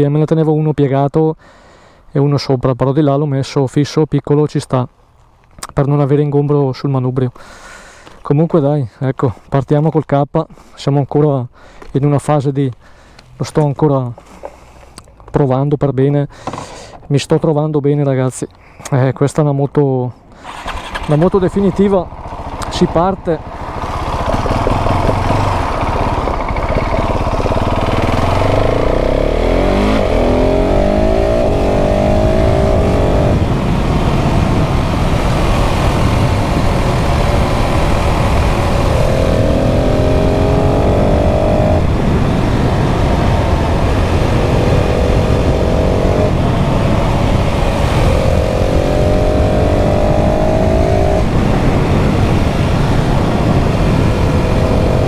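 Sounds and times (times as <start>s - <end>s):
motorcycle engine accelerating: 20.4s - 55.0s
wind noise: 20.5s - 55.0s.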